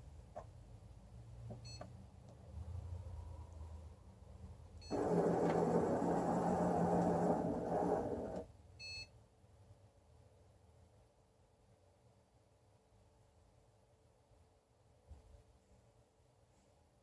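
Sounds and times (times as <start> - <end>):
robotic mechanism motors running: 4.9 - 8.4.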